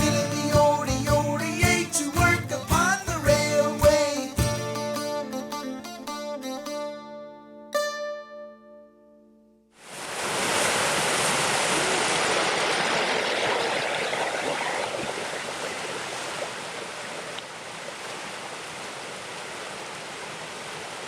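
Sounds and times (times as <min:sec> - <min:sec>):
plucked-string tune: 0:00.0 - 0:09.7
stream flowing: 0:09.8 - 0:21.0.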